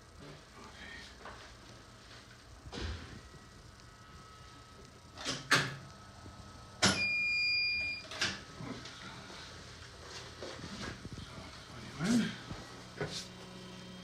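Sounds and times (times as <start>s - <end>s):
x-ray unit electronic beep: 6.8s - 8.2s.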